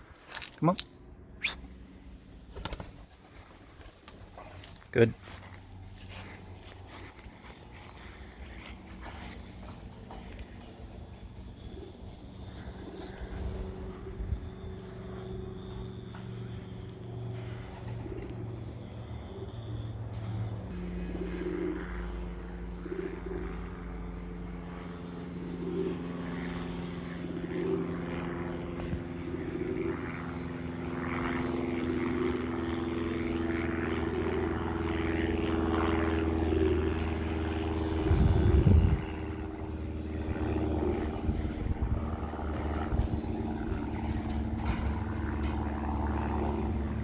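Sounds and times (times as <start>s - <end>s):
engine drone: 0.0s - 47.0s
pigeon cooing: 1.4s - 1.7s, 8.0s - 14.1s, 17.3s - 19.6s, 20.8s - 23.8s.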